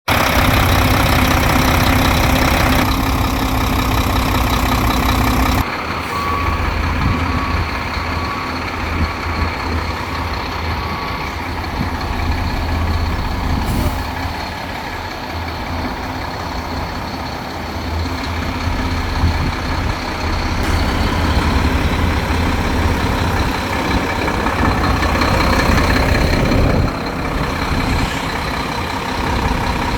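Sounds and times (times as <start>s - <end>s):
truck diesel engine rumbling: 0.1s - 29.9s
reversing beeper beeps: 2.0s - 9.5s, 10.3s - 12.4s.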